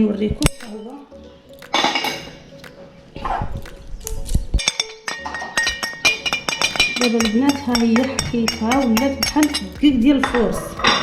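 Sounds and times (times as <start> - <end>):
metal spoon clinking on a dish: 4.6 - 11.0.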